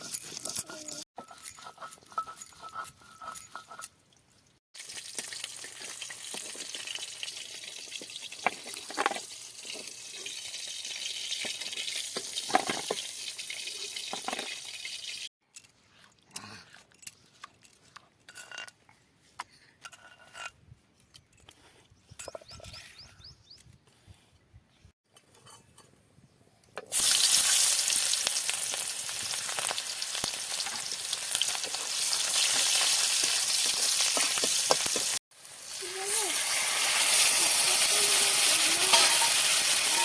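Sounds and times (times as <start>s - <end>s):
metal utensils clinking: 36.6s - 40.0s.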